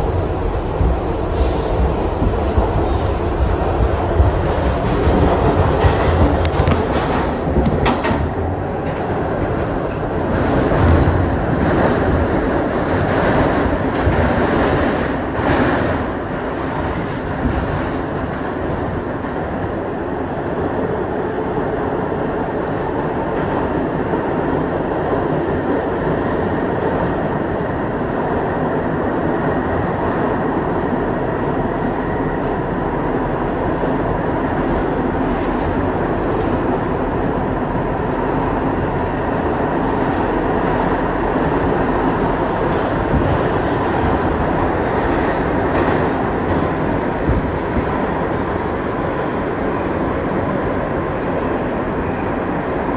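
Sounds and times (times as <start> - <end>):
subway train rumble on track: 0.0 - 52.9.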